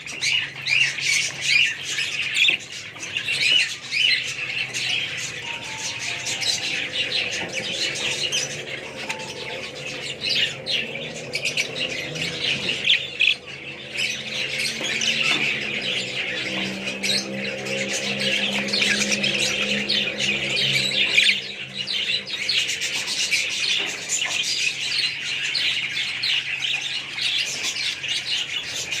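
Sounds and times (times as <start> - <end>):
budgies chattering: 0.0 - 29.0
low steady drone: 4.4 - 23.8.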